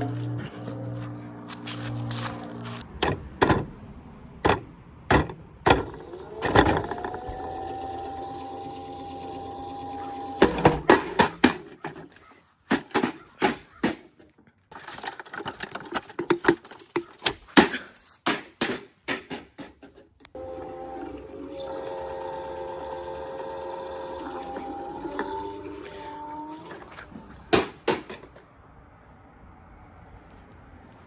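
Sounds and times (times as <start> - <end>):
steady whine: 0.0 - 2.8
plastic toy being smashed: 27.5 - 28.3.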